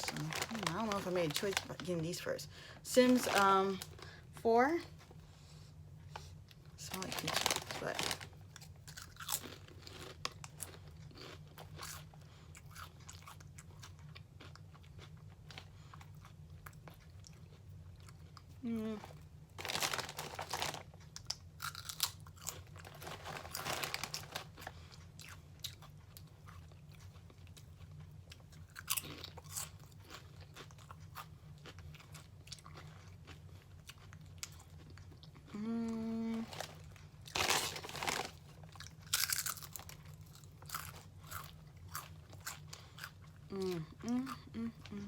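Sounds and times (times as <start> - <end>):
crunching potato chips: 0.0 - 2.2, 6.8 - 35.5, 36.3 - 45.0
person humming: 35.5 - 36.5, 43.5 - 45.0.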